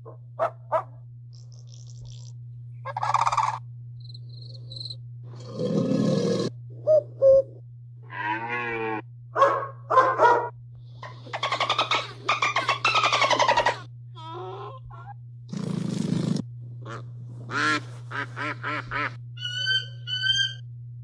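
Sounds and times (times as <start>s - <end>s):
low hum: 0.0s - 21.0s
recorded animal calls: 1.4s - 3.6s, 5.3s - 9.0s, 11.0s - 20.6s
cuckoo calling: 2.9s - 3.6s, 6.8s - 7.6s, 11.0s - 15.0s, 19.4s - 20.6s.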